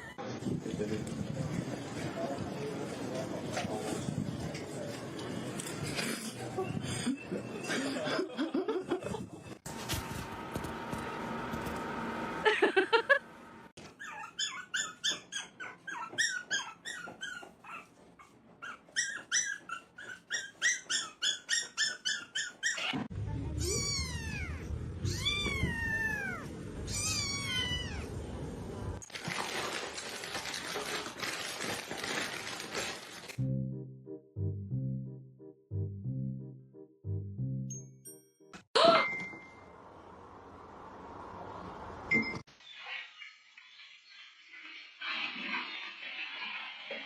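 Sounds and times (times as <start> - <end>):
kittens mewing: 23.6 - 28.1.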